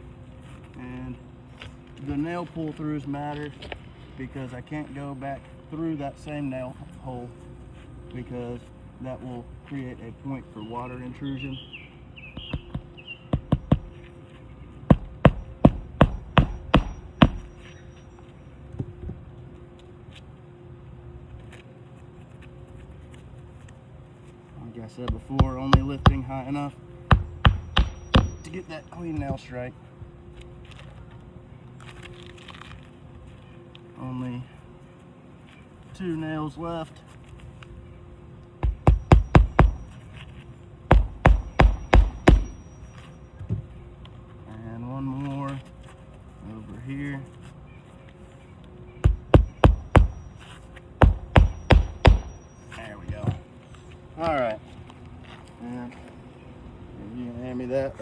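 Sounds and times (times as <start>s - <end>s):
hammer blows on shingle: 12.3s - 14.1s, 14.8s - 17.7s, 25.0s - 29.4s, 38.6s - 40.2s, 40.9s - 42.8s, 49.0s - 52.7s
hammer tapping nail: 12.4s - 14.0s, 14.9s - 17.6s, 25.1s - 26.4s, 27.1s - 28.6s, 38.6s - 40.0s, 40.9s - 42.7s, 49.0s - 52.4s.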